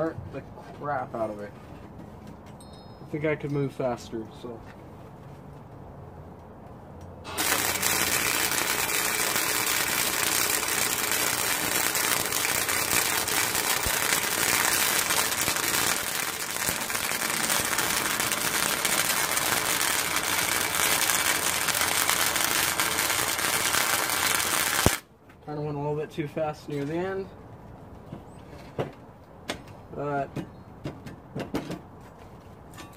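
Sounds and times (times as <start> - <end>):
welding arc crackling: 7.3 - 25.0.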